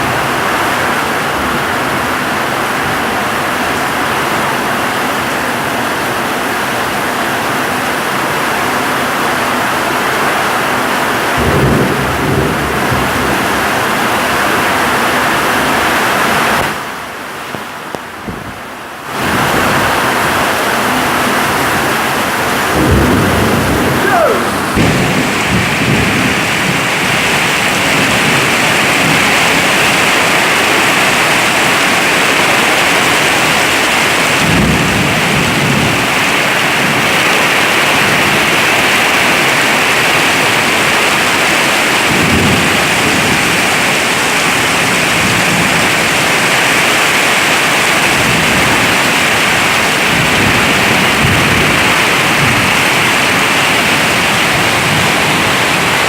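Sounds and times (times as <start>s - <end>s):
heavy rain hissing: 0.0s - 56.0s
low thunder rumbles: 9.8s - 16.6s, 18.1s - 56.0s.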